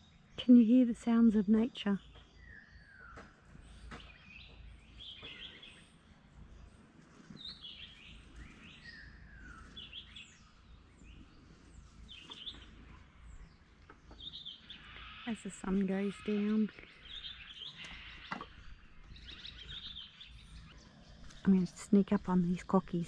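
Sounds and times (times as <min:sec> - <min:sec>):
birds chirping and calling: 0:00.0 - 0:23.0
faint low rumble: 0:00.2 - 0:14.4.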